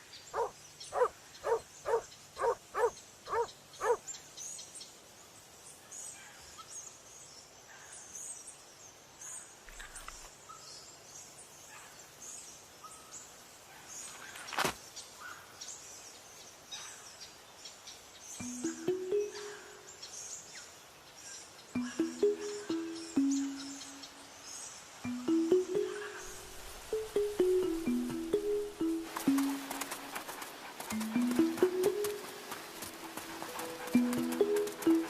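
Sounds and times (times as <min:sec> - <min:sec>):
small birds chirping: 0:00.0 - 0:35.0
dog barking: 0:00.4 - 0:04.0.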